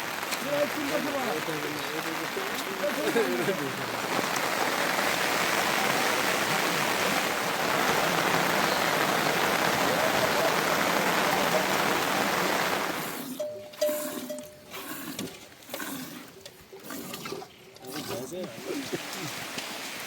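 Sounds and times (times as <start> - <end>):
heavy rain hissing: 0.0 - 13.4, 18.6 - 20.0.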